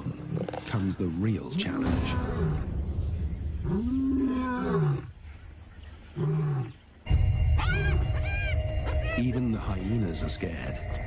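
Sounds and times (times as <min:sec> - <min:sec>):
lions and hyenas calling: 0:00.0 - 0:02.7, 0:03.6 - 0:09.4
deep rumbling growl: 0:01.7 - 0:06.8.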